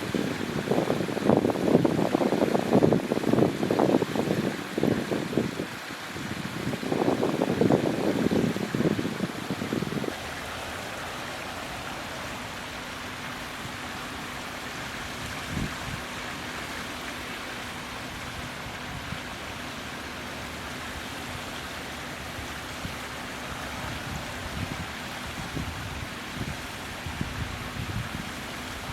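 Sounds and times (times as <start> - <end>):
wind buffeting microphone: 0.0 - 12.7, 15.1 - 16.1, 23.6 - 28.9
flowing water: 0.0 - 28.9.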